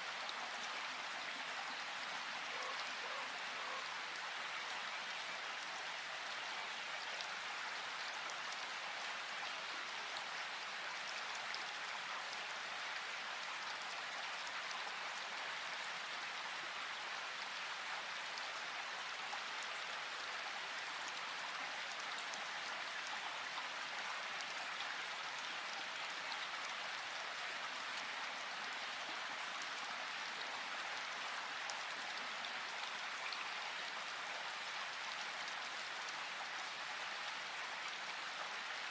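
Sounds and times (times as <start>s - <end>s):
river water rushing: 0.0s - 4.4s.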